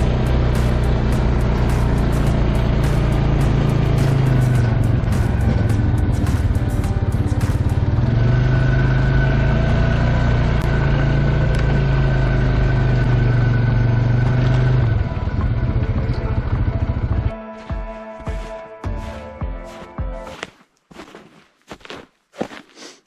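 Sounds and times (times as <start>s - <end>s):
engine running: 0.0s - 17.4s.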